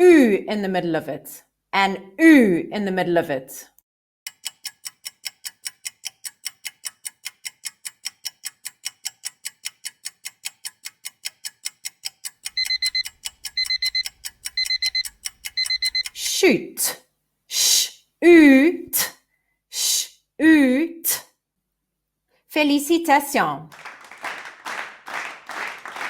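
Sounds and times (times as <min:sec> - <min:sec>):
clock ticking fast: 0:04.3 - 0:16.3
alarm clock beeping: 0:12.5 - 0:16.2.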